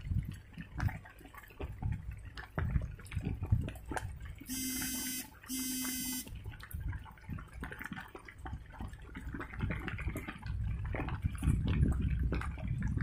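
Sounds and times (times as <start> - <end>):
rain dripping and pattering: 0.0 - 13.0
short buzzy beeps: 4.5 - 6.3.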